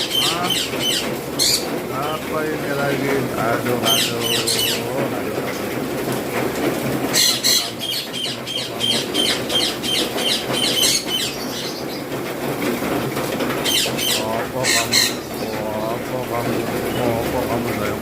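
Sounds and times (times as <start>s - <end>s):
parakeet squawking: 0.0s - 1.9s, 3.8s - 5.0s, 7.0s - 12.0s, 13.6s - 15.6s.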